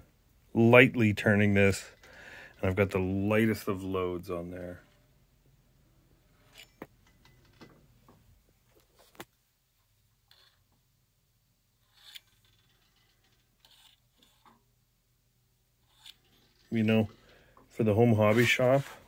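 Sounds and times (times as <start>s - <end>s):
light scrapes: 11.8s - 14.6s, 15.8s - 19.0s.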